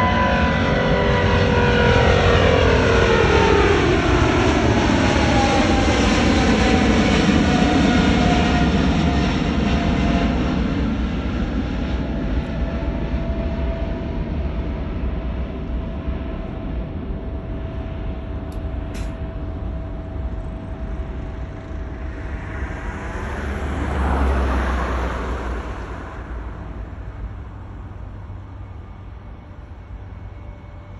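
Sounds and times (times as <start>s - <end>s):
jet engine rumble: 0.0s - 30.9s
jet engine whine: 0.0s - 30.9s
rushing swell: 21.0s - 27.1s.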